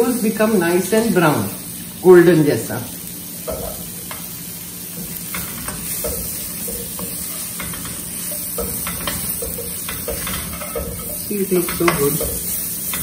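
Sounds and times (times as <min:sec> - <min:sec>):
potatoes sizzling in oil: 0:00.0 - 0:13.0
spatula scraping and tapping wok: 0:03.4 - 0:13.0.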